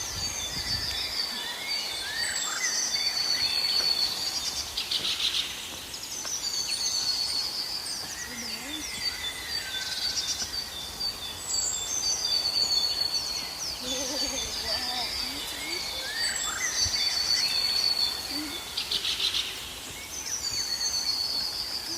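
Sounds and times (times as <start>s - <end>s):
birds chirping and singing: 0.0s - 21.9s
low wavering bird calls: 6.6s - 21.9s.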